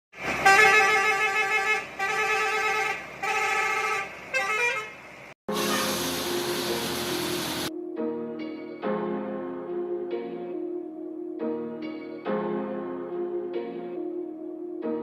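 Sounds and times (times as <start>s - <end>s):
bus horn blasts: 0.2s - 7.1s
music: 5.5s - 15.0s.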